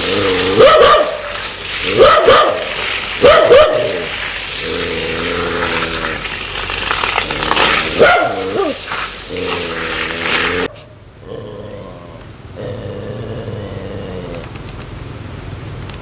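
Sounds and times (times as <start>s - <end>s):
dog growling low: 0.0s - 0.6s, 3.7s - 6.4s, 7.2s - 14.6s
dog barking: 0.5s - 4.1s, 8.0s - 8.8s.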